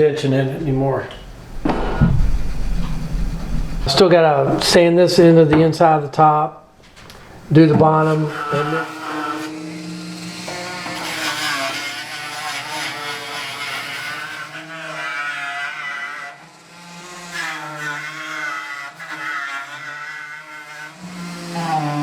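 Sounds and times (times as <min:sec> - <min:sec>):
power sander on sheet metal: 0:07.5 - 0:22.0.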